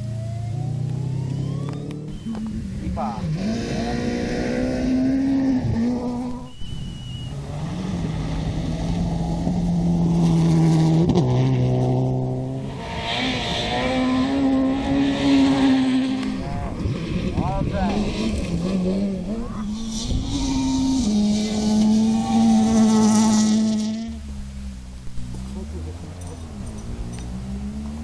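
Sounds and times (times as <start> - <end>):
rally car engine running hard: 7.3 - 24.4.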